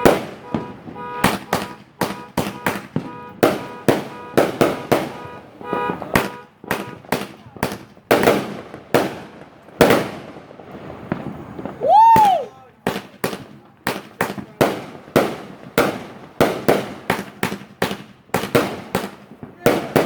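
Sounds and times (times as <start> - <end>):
firework bangs: 0.0 - 20.0
faint firework whistling: 11.0 - 12.6.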